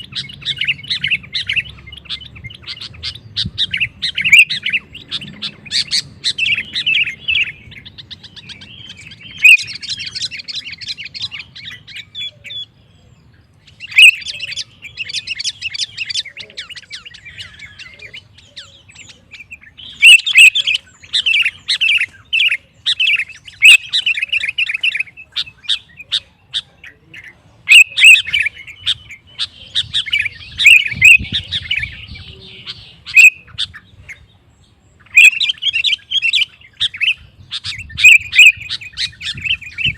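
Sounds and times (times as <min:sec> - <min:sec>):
bird singing rapid chirps: 0:00.0 - 0:39.9.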